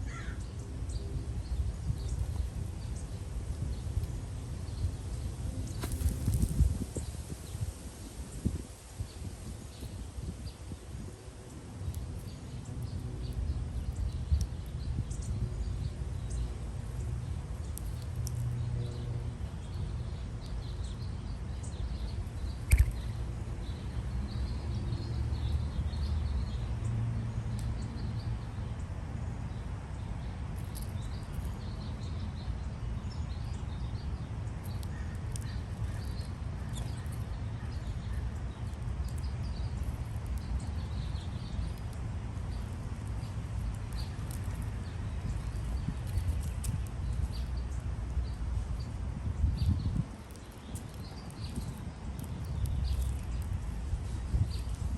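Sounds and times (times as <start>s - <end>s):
sharp click: 22.7s - 23.0s.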